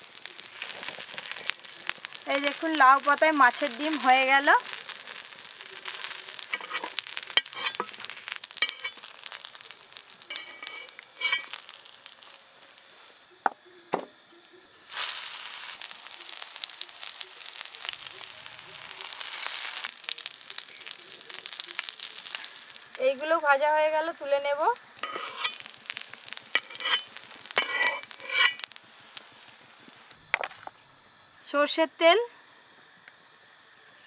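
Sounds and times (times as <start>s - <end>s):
food sizzling in oil: 0.0s - 13.4s, 14.8s - 30.2s
crackles: 0.0s - 31.5s.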